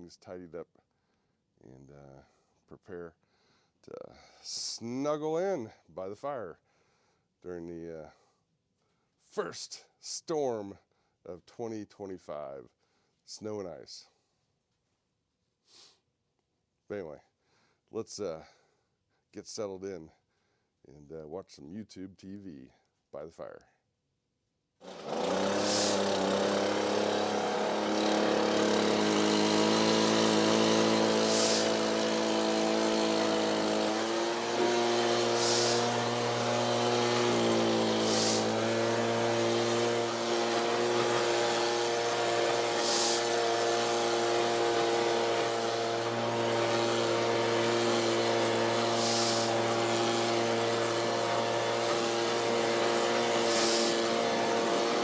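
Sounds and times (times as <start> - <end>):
vehicle engine running: 25.0 - 31.6, 32.6 - 55.0
brief hiss: 42.8 - 43.3.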